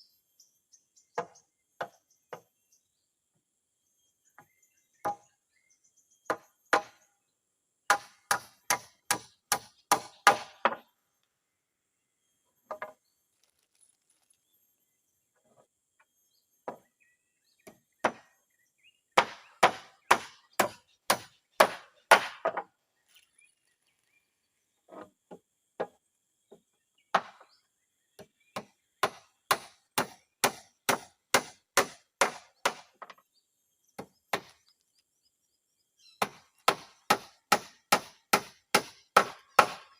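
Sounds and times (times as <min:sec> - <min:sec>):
hammer driving nails into wood: 0:19.2 - 0:22.7.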